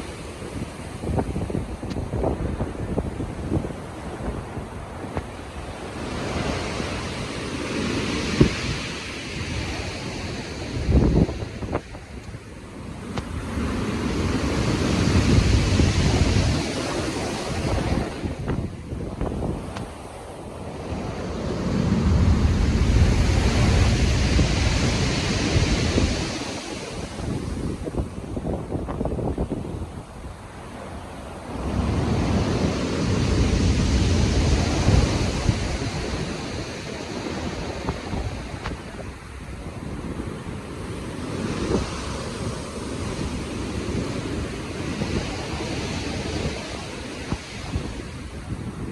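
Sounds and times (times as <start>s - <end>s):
low rumbling surges: 0.0s - 48.9s
waves breaking and surf rushing: 0.0s - 48.9s
wind gusting on microphone: 0.0s - 48.9s.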